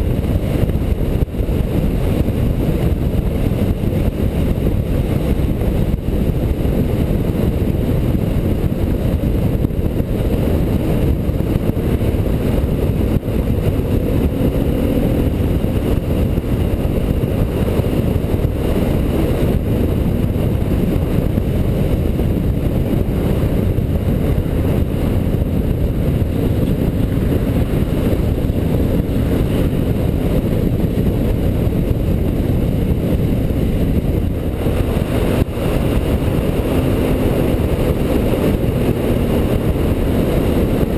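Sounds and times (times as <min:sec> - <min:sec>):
motorcycle engine drone: 0:00.0 - 0:40.9
wind and road noise rumble: 0:00.0 - 0:40.9.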